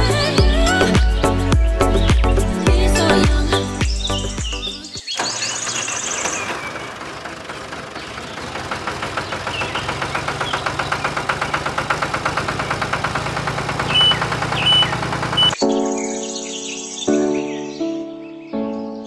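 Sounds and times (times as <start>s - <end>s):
truck engine knocking: 5.2s - 15.6s.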